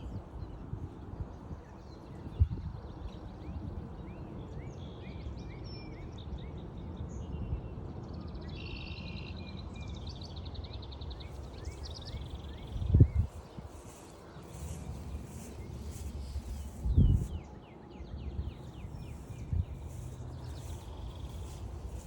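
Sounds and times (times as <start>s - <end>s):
songbirds singing: 8.5s - 22.0s.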